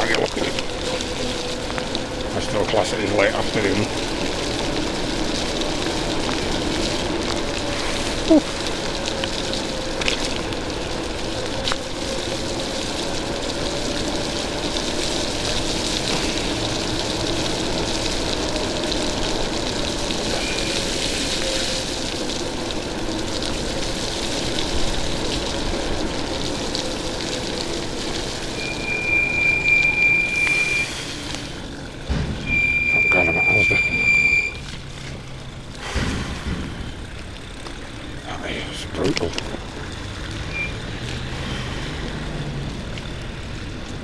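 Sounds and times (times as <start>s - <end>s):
heavy rain and road spray: 0.0s - 44.0s
high steady squeal: 20.2s - 22.0s, 28.4s - 31.8s, 32.4s - 37.2s.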